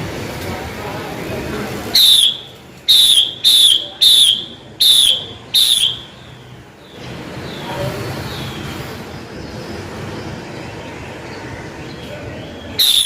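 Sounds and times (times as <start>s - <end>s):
bird whistled calls: 2.0s - 6.4s, 12.5s - 13.0s.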